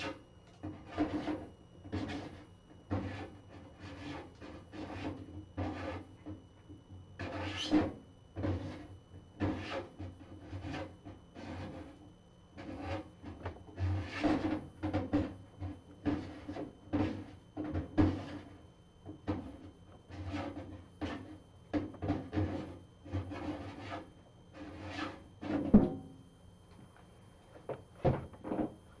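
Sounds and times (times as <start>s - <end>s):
rubbing and scraping: 0.6s - 6.1s, 12.6s - 15.3s, 20.1s - 21.4s, 22.0s - 25.8s
knocks of objects handled: 25.5s - 26.1s, 26.7s - 28.8s.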